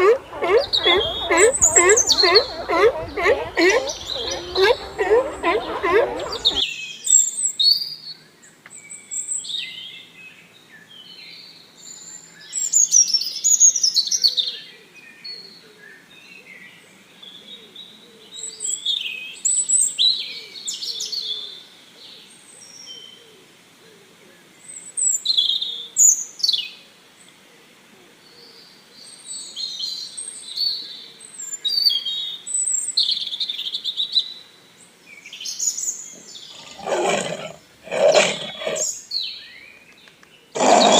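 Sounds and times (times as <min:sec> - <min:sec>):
small birds chirping and singing: 0:00.0 - 0:06.6, 0:35.1 - 0:40.9.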